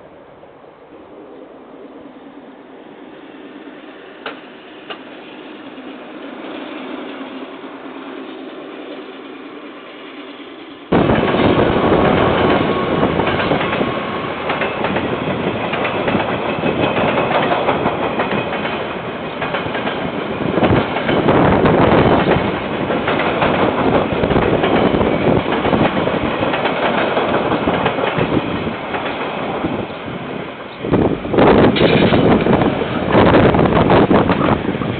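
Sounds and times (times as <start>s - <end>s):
train wheels clattering over rails: 10.9s - 34.9s.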